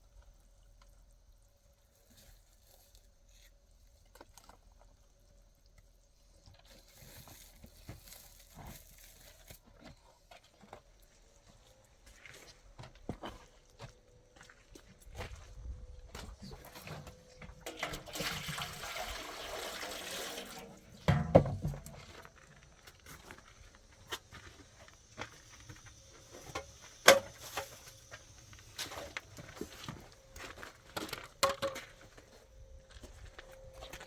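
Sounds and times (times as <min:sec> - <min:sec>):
water pouring: 0:17.6 - 0:22.0
heavy thump: 0:21.1 - 0:22.0.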